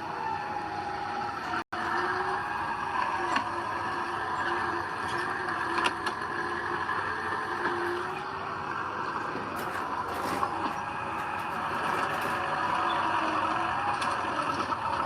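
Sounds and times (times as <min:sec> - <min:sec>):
heavy diesel machinery running: 0:00.0 - 0:15.0
short metallic clanks: 0:09.5 - 0:13.1.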